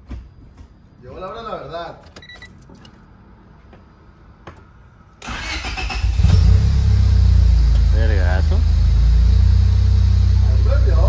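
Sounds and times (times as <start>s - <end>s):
car engine cranking and idling: 5.2s - 11.0s.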